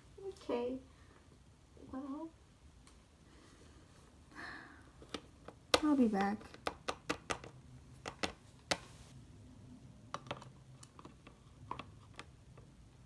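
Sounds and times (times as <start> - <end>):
plastic toy figurines clicking: 5.1 - 8.8.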